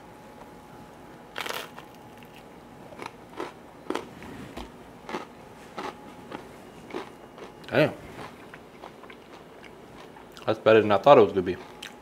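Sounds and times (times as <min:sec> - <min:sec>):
person chewing crunchy bread: 0:01.3 - 0:04.1, 0:05.0 - 0:10.5, 0:11.6 - 0:12.0.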